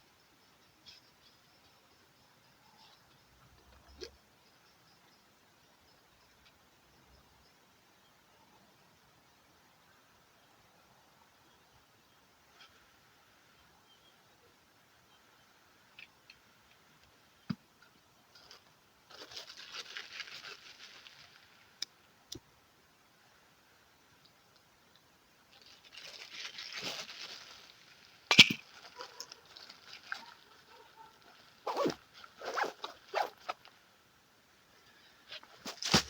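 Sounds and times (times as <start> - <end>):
rustling and crinkling handling: 18.3 - 21.7, 25.5 - 33.8, 35.3 - 36.0.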